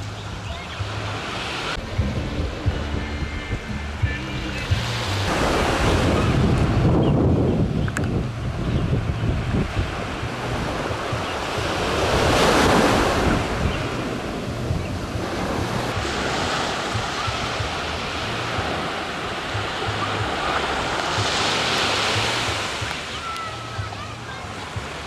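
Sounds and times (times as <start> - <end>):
surf waves crashing: 0.0 - 25.0
wind buffeting microphone: 1.7 - 21.4.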